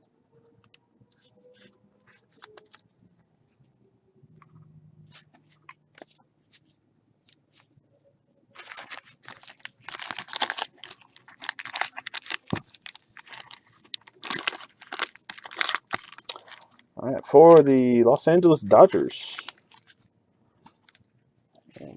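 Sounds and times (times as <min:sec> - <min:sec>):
plastic packaging crinkling: 0:08.6 - 0:16.9, 0:18.8 - 0:20.0.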